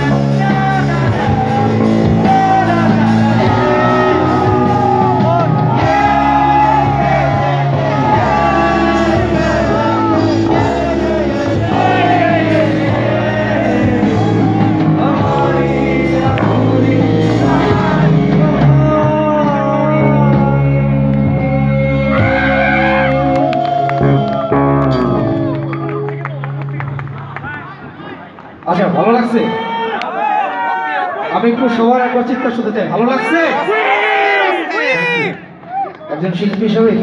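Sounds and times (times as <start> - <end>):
lead vocalist singing: 0.0 - 23.4
live rock band playing: 0.0 - 27.4.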